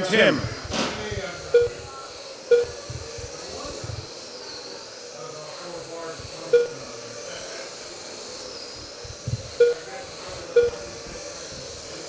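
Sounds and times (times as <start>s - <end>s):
electric motors whining: 0.0s - 12.0s
short electronic beeps: 1.5s - 1.9s, 2.5s - 2.9s, 6.6s - 6.8s, 9.5s - 9.9s, 10.5s - 10.9s.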